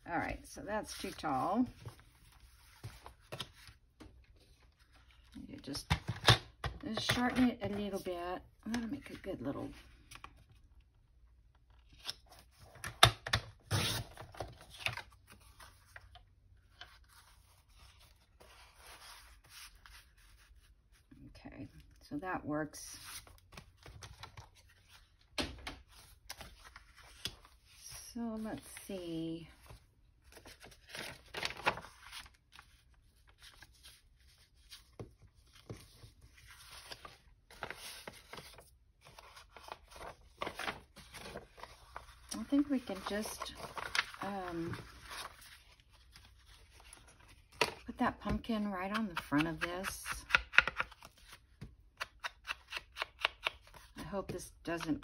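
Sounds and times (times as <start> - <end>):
paper rustling: 29.6 - 47.8.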